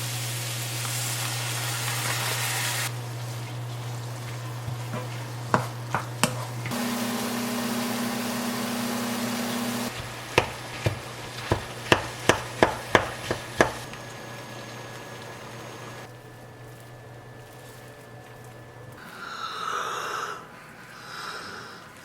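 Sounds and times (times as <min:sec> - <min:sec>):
steady hiss with low hum: 0:00.0 - 0:22.0
knife chopping on cutting board: 0:04.9 - 0:06.7, 0:10.0 - 0:13.9.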